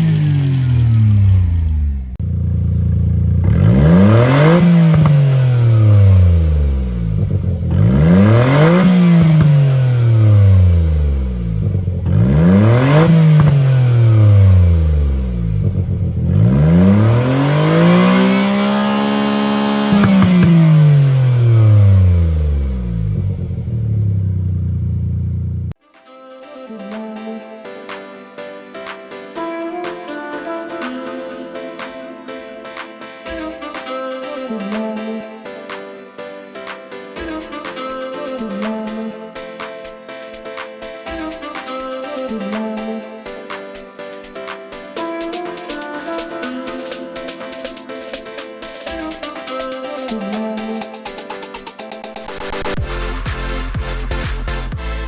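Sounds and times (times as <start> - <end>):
car engine revving: 0.0 - 25.8.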